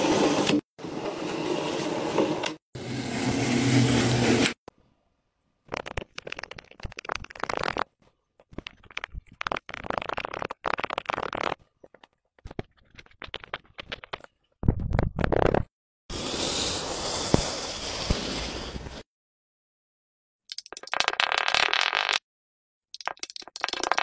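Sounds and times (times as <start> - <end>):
slime squelching and popping: 5.7 - 7.9, 8.5 - 14.2.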